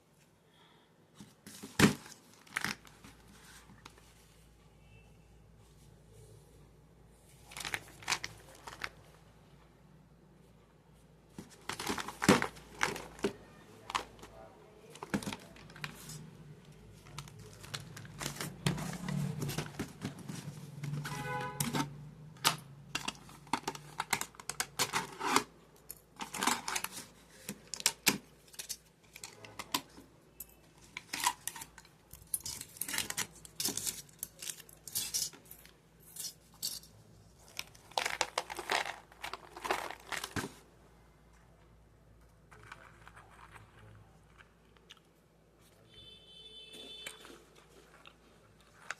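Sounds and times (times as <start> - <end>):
plastic wrapper crinkling: 1.6 - 4.0, 7.4 - 9.2, 11.4 - 21.9, 26.2 - 36.8, 37.4 - 40.6.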